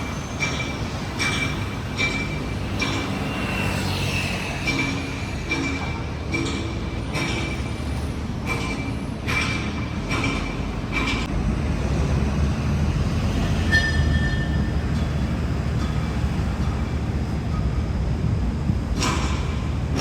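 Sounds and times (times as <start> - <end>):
wheels squealing: 0.0 - 5.9, 13.3 - 17.8
rail vehicle rumbling: 0.0 - 20.0.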